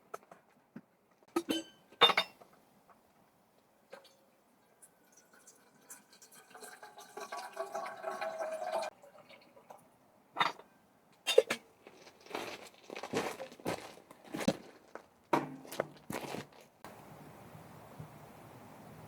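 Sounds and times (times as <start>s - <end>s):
tableware clinking: 1.4s - 2.4s, 10.4s - 10.7s
drink poured into a glass: 5.1s - 9.7s.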